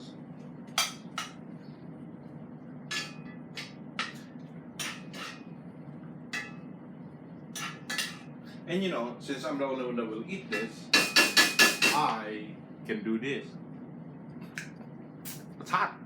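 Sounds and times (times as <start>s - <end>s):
steady low hum: 0.0s - 16.0s
metal utensil clinking against pot: 2.9s - 5.5s, 6.4s - 6.6s, 7.6s - 8.3s, 10.5s - 12.0s.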